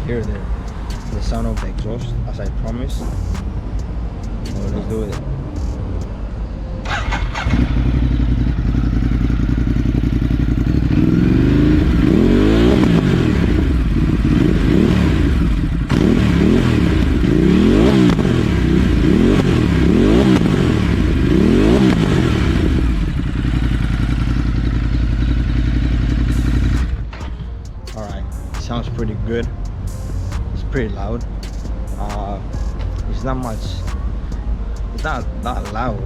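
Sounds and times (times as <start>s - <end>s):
exhaust puffs: 0.0s - 6.1s
motorcycle engine revving: 6.8s - 27.6s.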